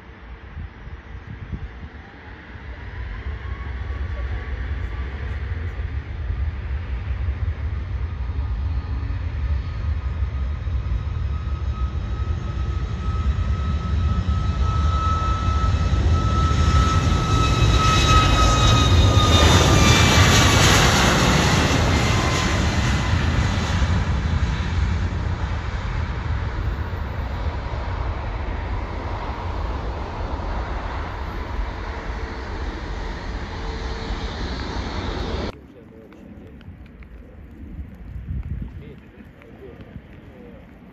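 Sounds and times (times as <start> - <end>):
jet engine whine dropping in pitch: 0.0 - 40.9
jet engines passing close: 0.0 - 40.9.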